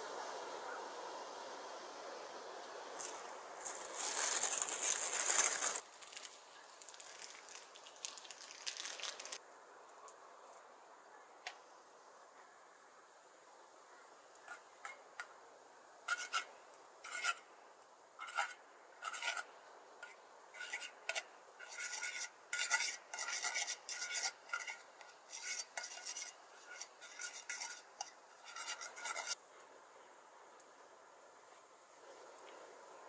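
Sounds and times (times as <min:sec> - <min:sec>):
rasping scraping strokes: 0:16.1 - 0:17.5, 0:18.2 - 0:29.4.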